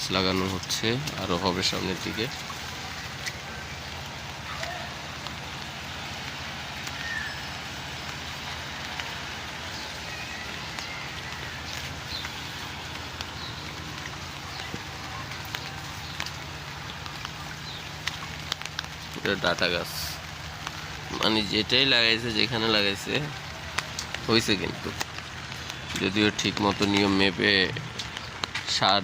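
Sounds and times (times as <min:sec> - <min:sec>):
steady rain falling: 0:00.0 - 0:29.0
drops ticking on surfaces: 0:23.1 - 0:28.8.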